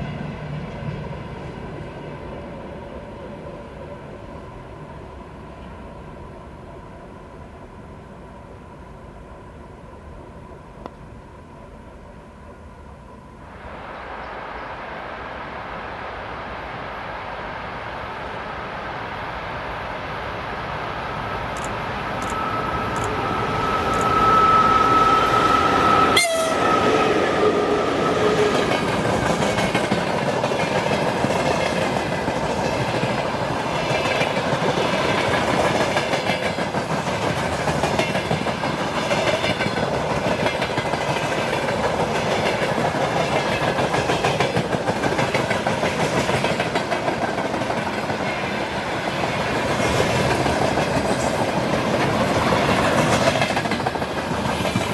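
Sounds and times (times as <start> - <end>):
locomotive horn: 22.4 - 28.3.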